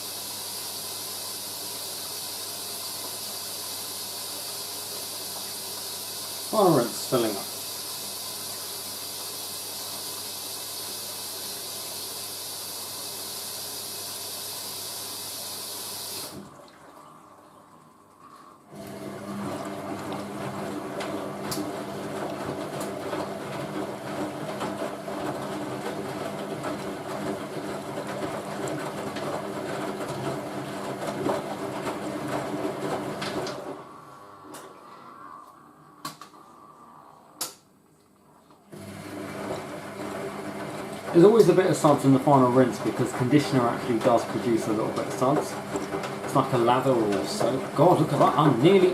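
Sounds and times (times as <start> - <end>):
water hissing into washing machine: 0.0 - 36.0, 38.7 - 48.9
washing machine motor hum: 0.0 - 37.6, 38.2 - 48.9.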